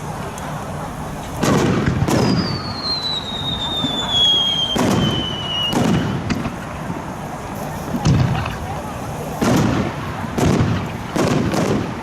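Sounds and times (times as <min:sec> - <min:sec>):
firework shells booming: 0:01.3 - 0:07.0, 0:08.0 - 0:12.0
firework whistle falling in pitch: 0:02.2 - 0:06.3.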